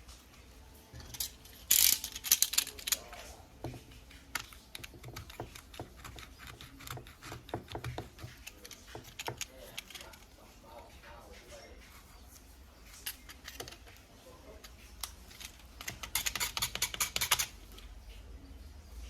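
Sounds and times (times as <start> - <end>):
metal parts and tools clattering: 0.9 - 10.4, 12.8 - 17.7.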